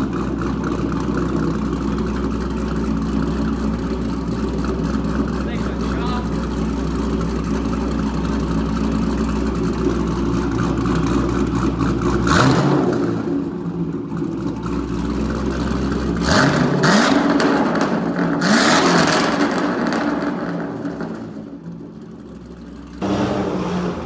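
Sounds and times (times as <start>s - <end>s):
car engine idling with choppy lope: 0.0s - 24.0s
engine revving: 12.0s - 13.4s, 16.1s - 21.4s, 23.0s - 24.0s.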